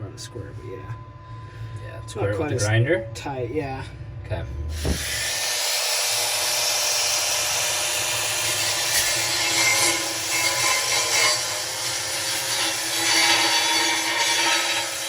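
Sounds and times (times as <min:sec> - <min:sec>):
angle grinder grinding steel: 0:04.7 - 0:15.0.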